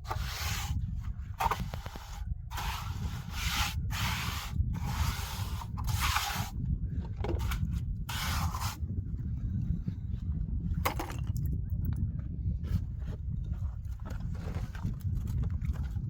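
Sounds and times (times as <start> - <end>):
long scraping strokes: 0.0 - 0.8, 1.4 - 6.6, 7.4 - 8.8
steady low rumble: 0.0 - 16.0.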